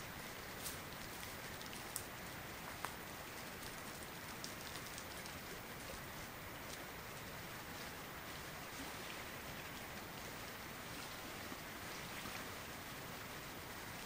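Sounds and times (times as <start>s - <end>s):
raindrops ticking on tarp: 0.0s - 8.0s
light rain hiss: 0.0s - 14.0s.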